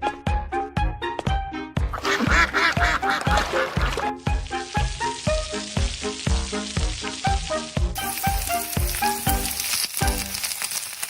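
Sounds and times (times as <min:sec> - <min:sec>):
sizzling hiss: 0:03.8 - 0:11.0.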